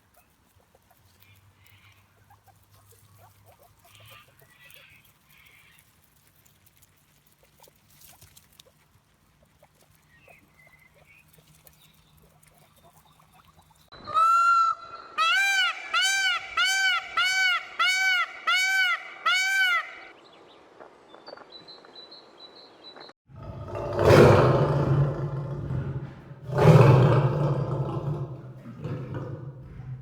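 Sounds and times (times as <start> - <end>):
deep animal roars: 23.3 - 30.0.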